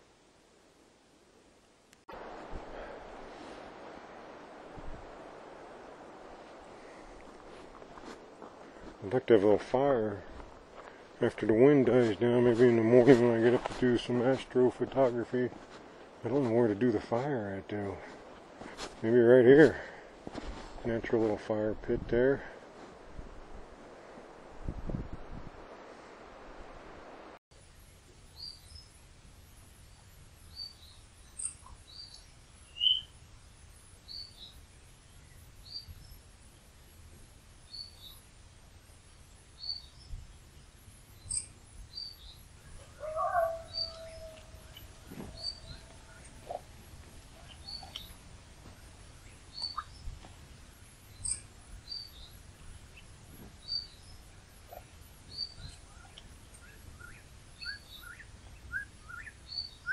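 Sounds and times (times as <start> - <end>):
bird chirping: 30.5 - 33.2, 39.6 - 40.2, 41.1 - 50.2, 50.8 - 59.9.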